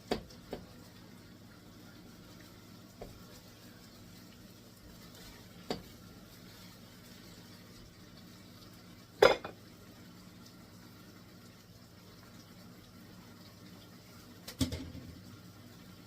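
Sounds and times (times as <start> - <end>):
meat sizzling in a pan: 0.0 - 16.0
kitchenware clattering: 9.2 - 9.6.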